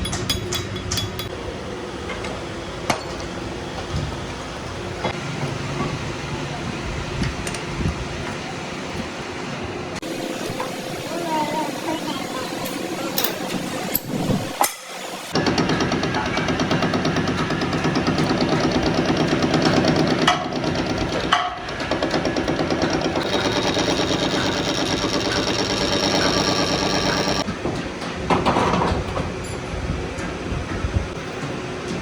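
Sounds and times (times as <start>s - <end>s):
workshop machinery running: 9.2s - 32.0s.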